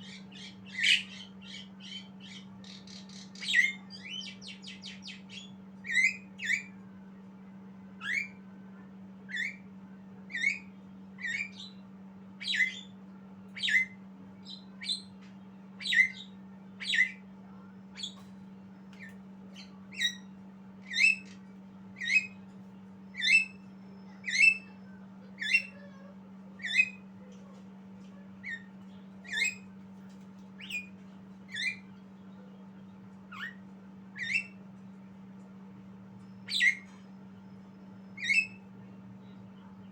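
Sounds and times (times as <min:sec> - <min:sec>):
bird harsh squawking calls: 0:00.0 - 0:06.6
steady low hum: 0:00.0 - 0:39.9.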